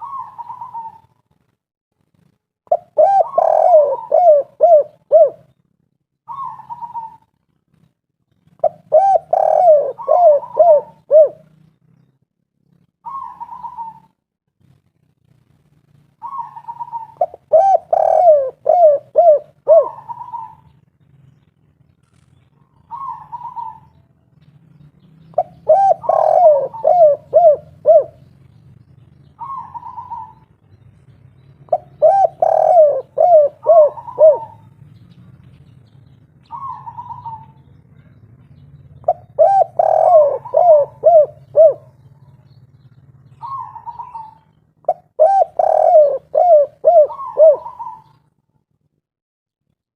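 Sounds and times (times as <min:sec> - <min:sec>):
dove cooing: 0:00.0 - 0:01.2, 0:02.7 - 0:05.6, 0:06.3 - 0:07.3, 0:08.5 - 0:11.6, 0:13.0 - 0:14.2, 0:16.2 - 0:20.8, 0:22.6 - 0:24.0, 0:25.3 - 0:28.5, 0:29.3 - 0:30.5, 0:31.6 - 0:34.8, 0:36.4 - 0:38.2, 0:39.0 - 0:48.3.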